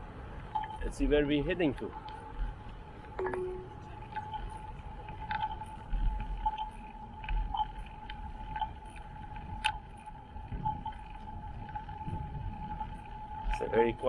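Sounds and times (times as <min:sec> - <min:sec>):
road noise: 0:00.0 - 0:14.0
wind rumble on microphone: 0:00.0 - 0:14.0
bicycle clicks and rattles: 0:00.3 - 0:14.0
faint high tone: 0:03.2 - 0:03.9.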